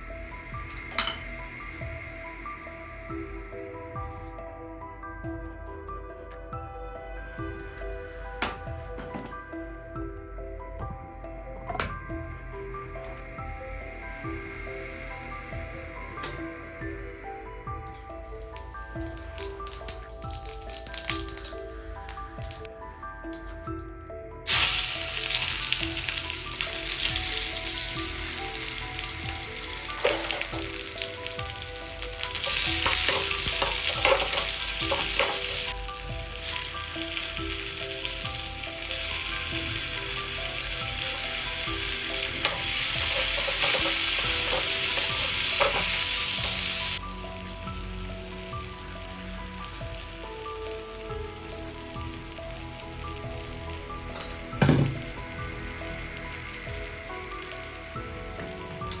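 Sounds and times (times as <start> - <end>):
food sizzling in a pan: 17.8 - 22.7, 24.4 - 59.0.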